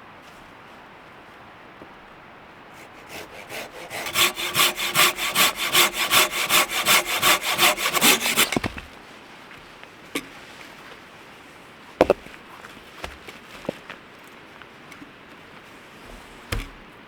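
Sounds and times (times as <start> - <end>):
hand saw cutting wood: 2.8 - 8.9.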